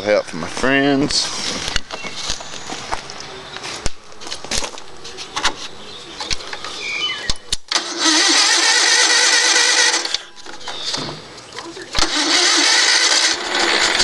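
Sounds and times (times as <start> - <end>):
tractor machinery running: 7.7 - 14.0.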